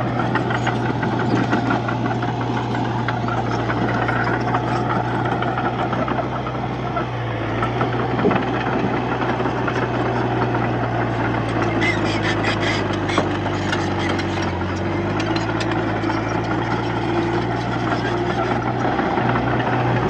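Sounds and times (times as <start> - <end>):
bulldozer diesel engine running: 0.0 - 20.0
rattling metallic clatter: 12.6 - 19.0.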